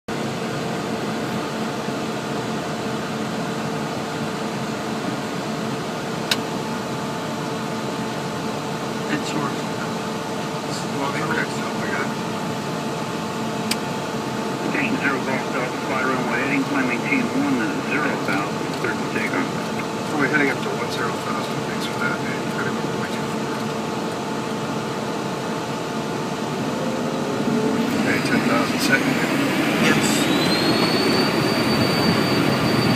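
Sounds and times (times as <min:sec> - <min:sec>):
jet engines humming: 0:00.1 - 0:32.9
faint rising tone: 0:26.4 - 0:32.5.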